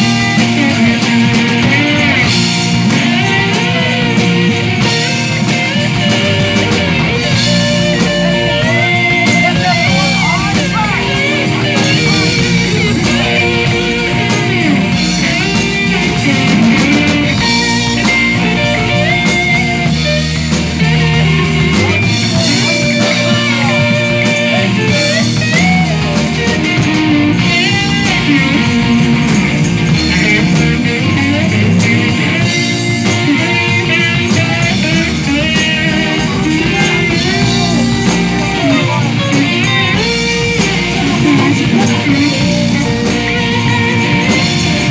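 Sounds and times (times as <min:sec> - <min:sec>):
person singing: 0:00.0 - 0:19.1, 0:33.1 - 0:44.9
electric guitar bending notes: 0:00.0 - 0:44.9
live rock blues band: 0:00.0 - 0:44.9.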